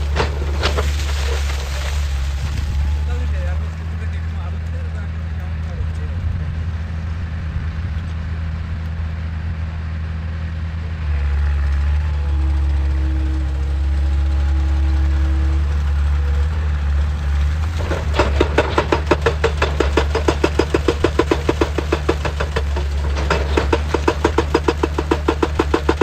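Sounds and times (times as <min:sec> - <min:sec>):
hydraulic breaker hammering rock: 0:00.0 - 0:02.3, 0:17.3 - 0:26.0
excavator engine running: 0:00.0 - 0:26.0.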